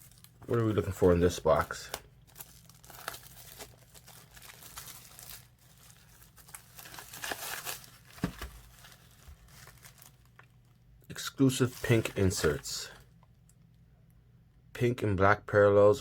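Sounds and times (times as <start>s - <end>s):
packaging crinkling and rustling: 0.0s - 10.8s, 11.5s - 13.3s.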